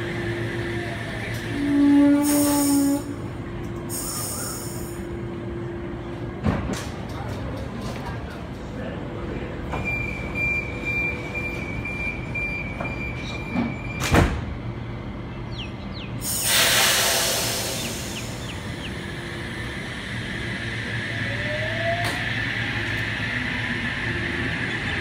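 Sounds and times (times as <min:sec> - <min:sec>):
sliding doors banging shut: 0:13.6 - 0:14.6
compressed air hissing: 0:16.2 - 0:18.4.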